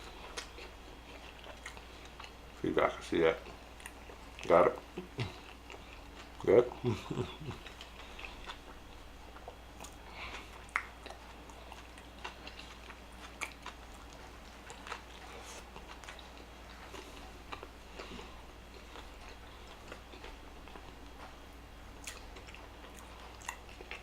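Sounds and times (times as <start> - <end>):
chewing food: 0.0 - 24.0
mouth clicks and smacks: 10.7 - 11.2.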